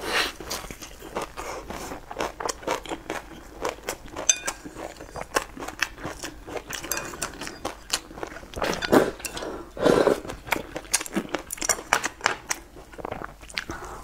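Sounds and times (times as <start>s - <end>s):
crunchy chewing: 0.3s - 14.0s
chopsticks clinking porcelain bowl: 4.2s - 5.4s, 6.2s - 8.0s, 8.6s - 9.5s.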